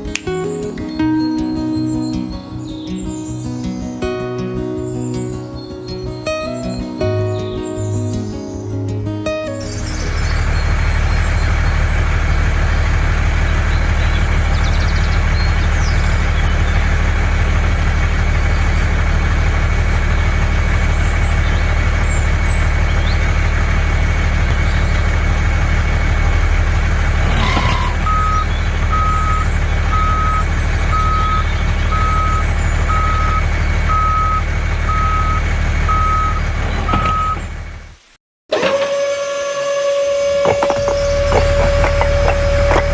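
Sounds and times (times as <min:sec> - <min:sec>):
vehicle engine humming: 0:06.6 - 0:37.8, 0:40.0 - 0:42.9
reversing alarm beeping: 0:27.8 - 0:37.5.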